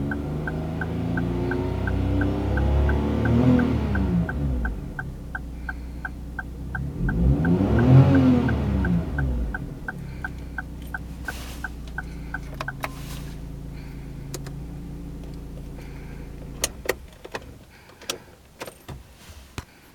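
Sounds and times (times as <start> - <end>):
light regular ticking: 0.0 - 19.0
small car engine idling and revving: 0.0 - 19.6
sharp clicks: 14.3 - 14.6.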